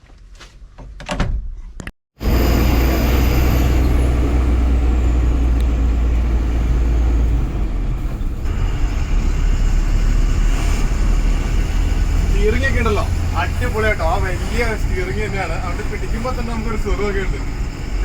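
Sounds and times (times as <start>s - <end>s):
road and wind noise: 2.2s - 18.0s
truck diesel engine rumbling: 2.2s - 18.0s.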